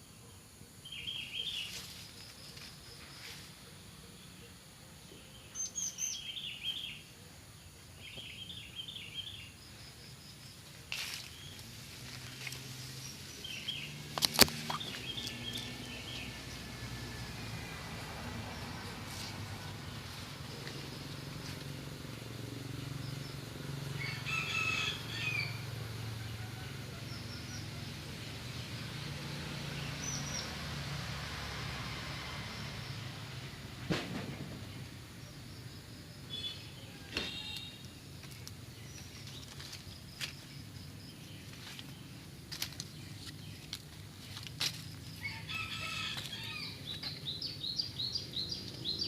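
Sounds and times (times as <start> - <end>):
rustle: 0.8 - 4.5, 7.8 - 22.4, 36.3 - 49.0
small bird chirping: 12.4 - 16.4.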